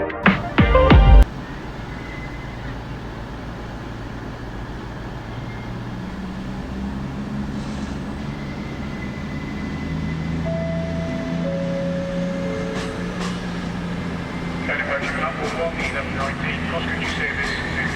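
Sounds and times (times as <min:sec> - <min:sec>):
whine stepping down in pitch: 0:00.0 - 0:02.8, 0:08.5 - 0:16.4
train mechanical hum: 0:00.3 - 0:17.9
thin high tone: 0:10.5 - 0:13.4.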